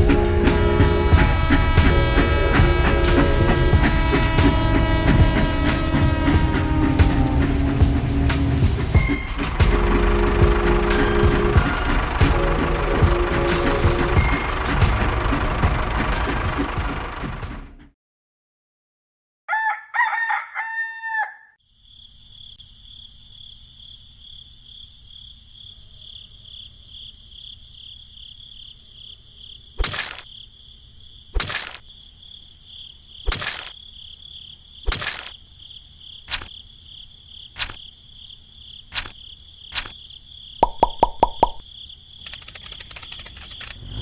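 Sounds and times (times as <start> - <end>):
rooster crowing: 19.5 - 21.6
sharp knocks: 40.6 - 41.6.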